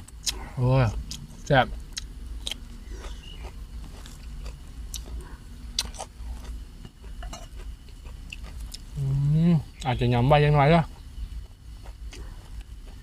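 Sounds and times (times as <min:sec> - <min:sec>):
person chewing food: 0:00.0 - 0:09.9, 0:10.8 - 0:13.0.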